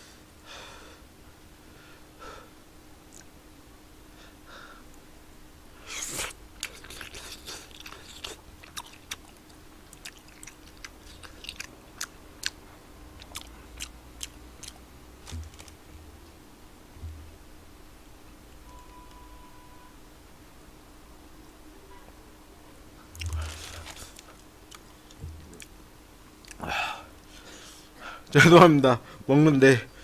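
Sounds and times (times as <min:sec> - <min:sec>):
slurp or bite: 0:05.9 - 0:08.4
wet chewing clicks and smacks: 0:06.6 - 0:12.6, 0:13.2 - 0:15.8, 0:23.1 - 0:25.8, 0:26.4 - 0:26.6.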